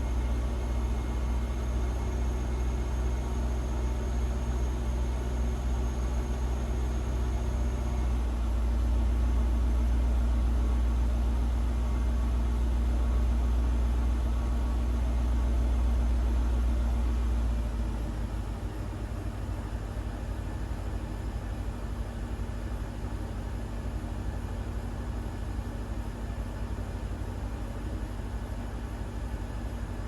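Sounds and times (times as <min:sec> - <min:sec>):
car engine idling: 0:14.0 - 0:30.0.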